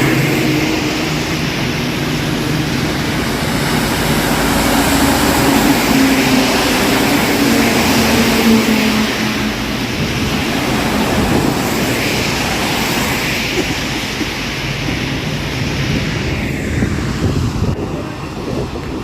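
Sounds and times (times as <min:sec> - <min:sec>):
heavy rain hissing: 0:00.0 - 0:18.8
passing vehicle engine drone: 0:00.0 - 0:19.0
tyres on wet road: 0:00.0 - 0:19.0.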